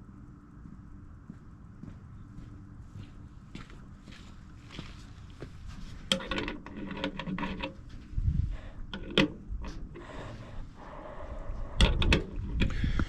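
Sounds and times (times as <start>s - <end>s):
tools scraping and rubbing: 5.7s - 8.1s.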